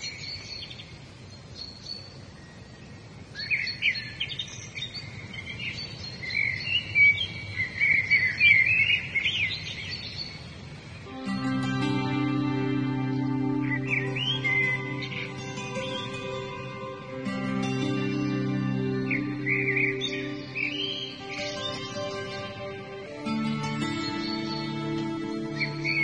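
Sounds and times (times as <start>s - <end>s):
outdoor hiss: 6.8s - 26.0s
slow music with held tones: 11.0s - 26.0s
birds chirping and singing: 11.1s - 26.0s.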